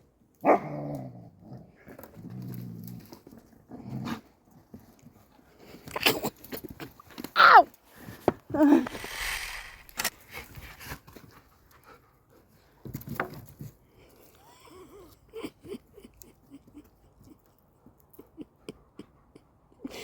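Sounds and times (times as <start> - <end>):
sharp clicks and cracks: 8.8 - 10.2.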